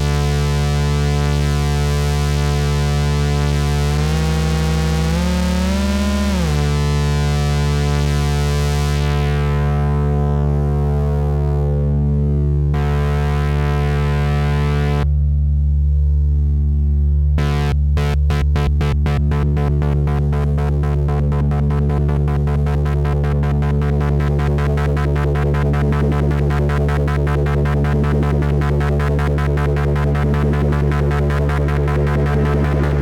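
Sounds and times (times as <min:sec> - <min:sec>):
deep synthesizer drone: 0:00.0 - 0:33.0
rapid synthesizer pulsing: 0:01.4 - 0:09.4, 0:17.4 - 0:33.0.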